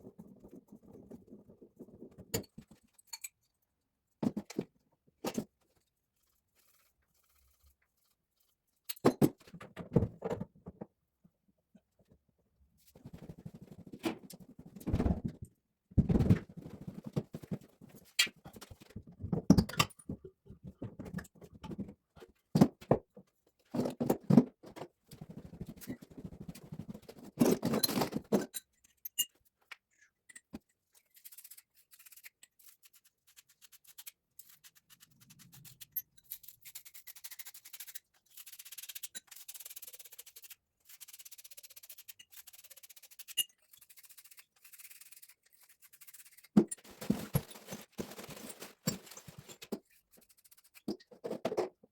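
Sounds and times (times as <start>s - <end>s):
knocks and scrapes on plumbing: 4.2s - 5.6s, 12.9s - 28.6s, 46.6s - 50.0s, 50.7s - 51.9s.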